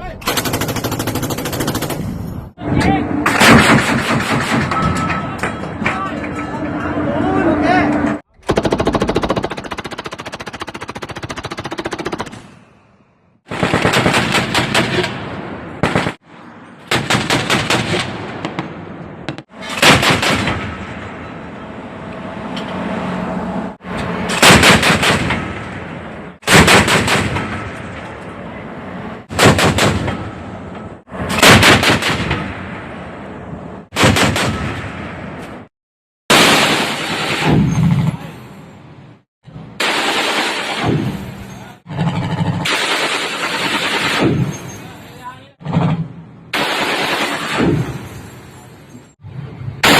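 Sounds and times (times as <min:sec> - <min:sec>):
machine guns firing bursts: 0:00.3 - 0:02.0, 0:08.5 - 0:12.4, 0:13.5 - 0:15.0, 0:42.6 - 0:44.3, 0:46.6 - 0:47.6.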